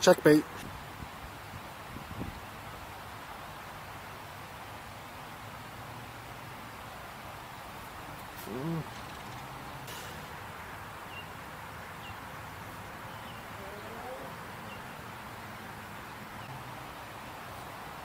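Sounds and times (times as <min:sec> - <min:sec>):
outdoor background noise: 0:00.0 - 0:18.0
faint bird chirp: 0:07.5 - 0:17.6.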